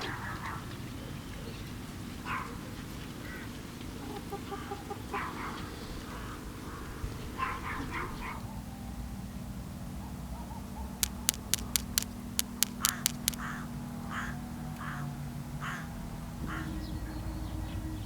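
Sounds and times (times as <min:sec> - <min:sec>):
sharp clicks: 0:11.0 - 0:13.5.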